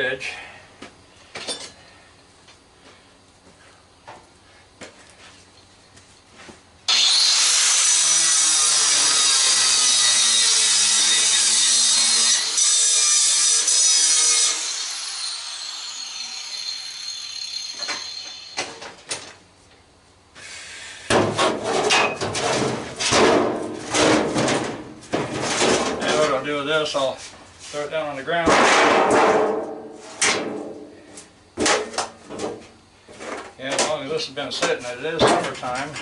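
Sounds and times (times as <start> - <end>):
angle grinder cutting metal: 6.9 - 19.0
grinder blade whine spinning down: 14.5 - 19.0
knocks and metal clatter: 21.1 - 26.3, 28.4 - 30.7.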